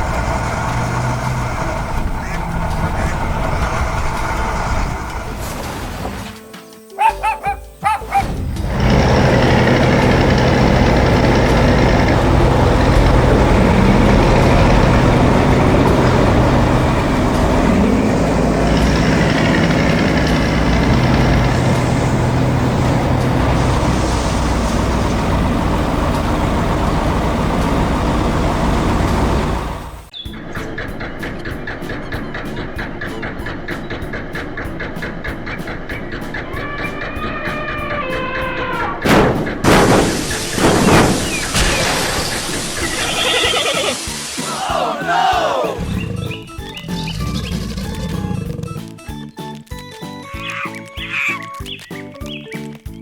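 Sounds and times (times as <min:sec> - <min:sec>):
heavy vehicle engine running: 0:00.0 - 0:06.0, 0:07.2 - 0:49.8
background music: 0:00.0 - 0:40.6, 0:42.0 - 0:53.0.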